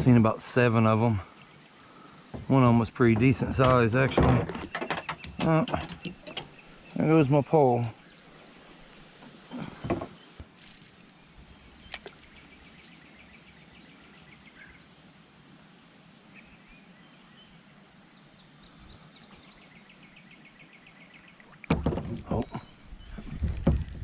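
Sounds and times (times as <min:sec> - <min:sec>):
knocks: 0:21.7 - 0:22.6.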